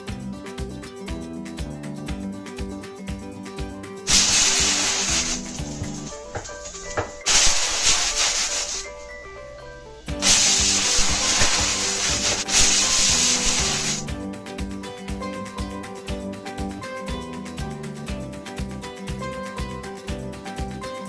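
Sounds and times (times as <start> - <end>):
background music: 0.0 - 21.0
rough rubbing scraping noise: 4.1 - 9.0, 10.2 - 14.1.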